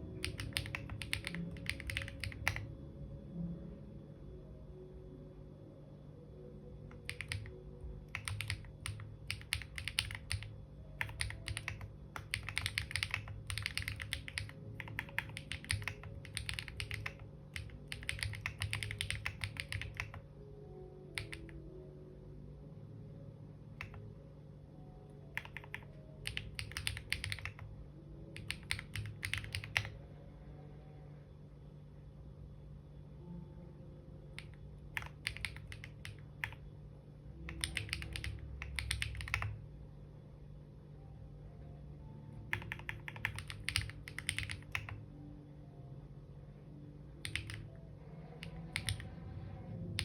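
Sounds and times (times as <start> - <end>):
typing on computer keyboard: 0.1 - 2.7, 6.9 - 20.3, 21.1 - 21.6, 23.8 - 24.0, 25.3 - 27.7, 28.3 - 30.0, 34.4 - 36.6, 37.4 - 39.6, 42.5 - 45.0, 47.2 - 47.8, 48.4 - 50.0.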